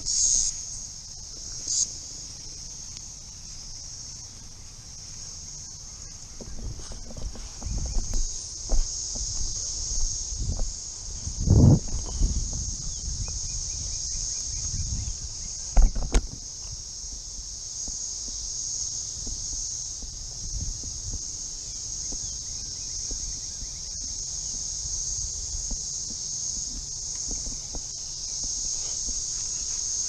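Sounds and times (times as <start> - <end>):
cicadas droning: 0.0 - 30.0
low thumps on microphone: 6.4 - 13.7, 15.7 - 16.5, 19.2 - 21.4, 25.5 - 29.3.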